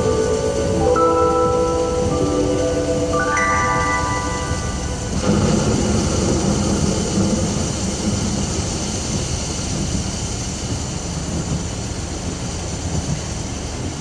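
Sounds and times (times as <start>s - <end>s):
rolling thunder rumble: 0.0s - 14.0s
steady rain: 0.0s - 14.0s.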